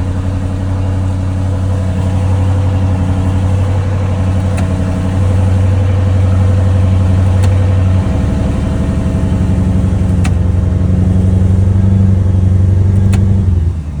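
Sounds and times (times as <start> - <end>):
car exhaust idling: 0.0 - 14.0.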